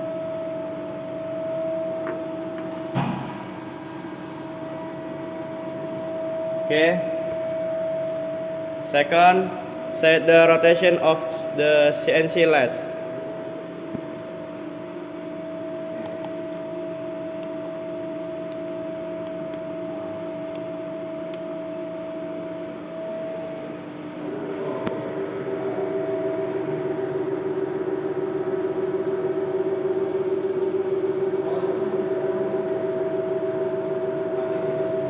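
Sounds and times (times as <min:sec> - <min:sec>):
lathe machine hum: 0:22.8 - 0:35.0.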